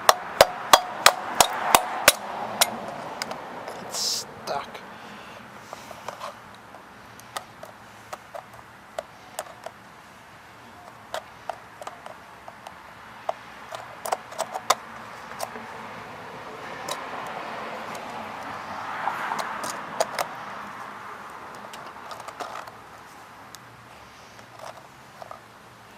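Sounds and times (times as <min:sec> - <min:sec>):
metallic clicks and taps of tools: 0:10.8 - 0:15.6, 0:16.8 - 0:18.5, 0:19.4 - 0:20.3.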